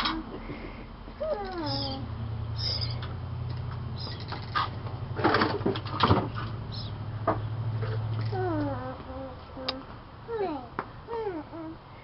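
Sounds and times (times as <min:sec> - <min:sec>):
steady low hum: 0:00.0 - 0:12.0
baby bird cheeping: 0:01.2 - 0:03.1, 0:03.9 - 0:04.6, 0:06.7 - 0:07.0
knocks and rustles: 0:03.0 - 0:06.6.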